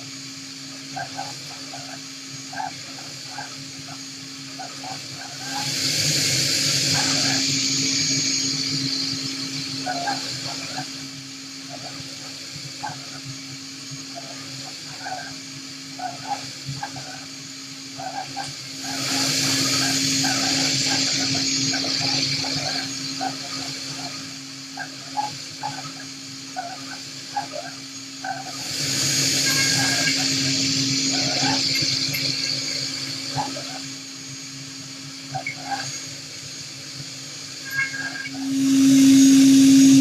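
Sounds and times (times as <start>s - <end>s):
milling machine humming: 0.0s - 40.0s
loud hiss: 5.4s - 12.2s, 18.6s - 25.1s, 28.4s - 35.6s, 36.3s - 40.0s.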